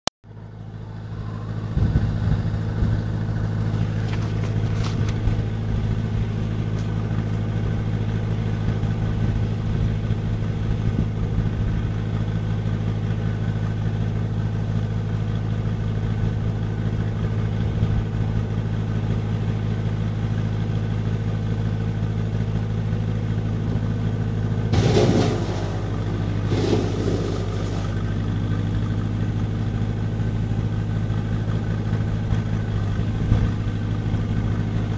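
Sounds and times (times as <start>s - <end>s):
tractor engine running: 0.3s - 34.9s
short loud noises: 24.8s - 28.3s.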